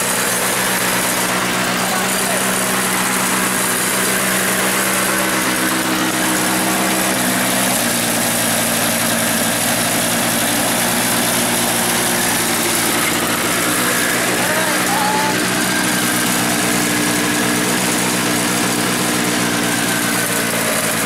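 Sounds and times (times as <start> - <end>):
snowblower engine running: 0.0 - 21.0.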